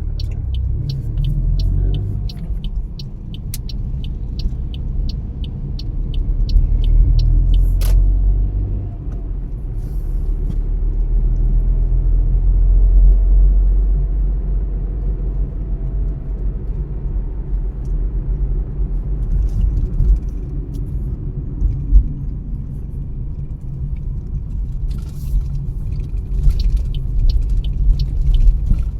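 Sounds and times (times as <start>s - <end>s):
regular ticking: 0.0s - 7.8s, 25.9s - 28.9s
car road and engine rumble: 0.0s - 28.9s.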